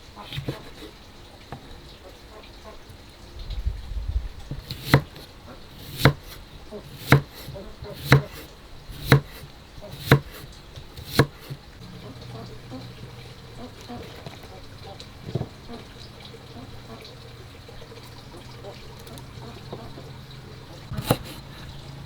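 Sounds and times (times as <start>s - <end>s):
cleaver chopping on cutting board: 0.3s - 0.9s, 4.6s - 11.6s, 20.9s - 21.6s
low rumble: 3.4s - 4.5s.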